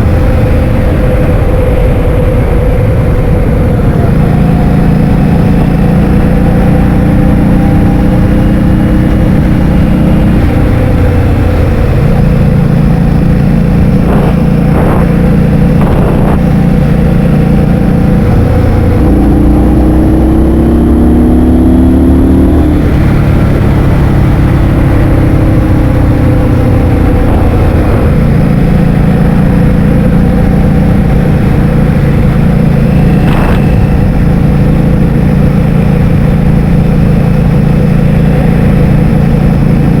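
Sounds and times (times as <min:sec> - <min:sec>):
wind buffeting microphone: 0:11.6 - 0:19.2, 0:26.0 - 0:36.6
scooter motor: 0:26.7 - 0:40.0.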